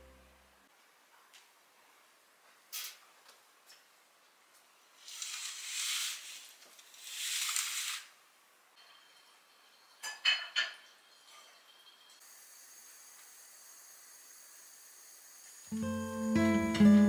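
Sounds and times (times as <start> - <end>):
kitchen utensil scraping: 8.8 - 12.2
metal clinking on a dish: 8.8 - 12.2.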